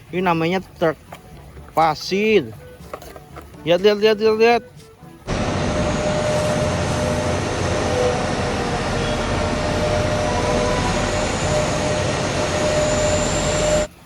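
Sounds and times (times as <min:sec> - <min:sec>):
motor whirring: 0:05.3 - 0:13.9.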